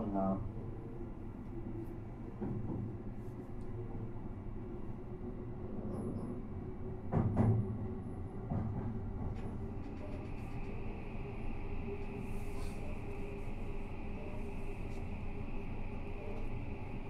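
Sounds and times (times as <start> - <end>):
train wheels rumbling on rail: 2.2 - 3.2, 5.4 - 17.0.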